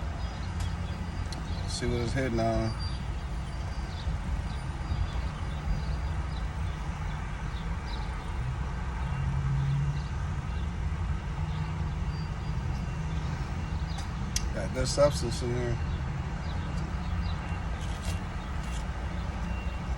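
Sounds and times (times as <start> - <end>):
vehicle engine idling: 0.0 - 19.9.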